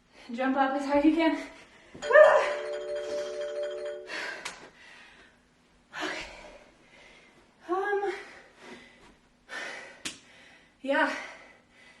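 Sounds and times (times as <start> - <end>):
steady ringing tone: 2.0 - 4.4
woman panting and gasping: 5.9 - 12.0.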